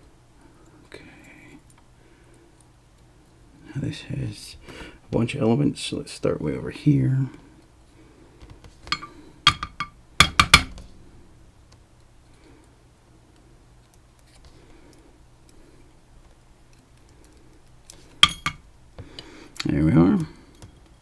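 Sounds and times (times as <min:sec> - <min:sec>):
metal pins clinking: 0:08.9 - 0:10.9, 0:18.2 - 0:18.7.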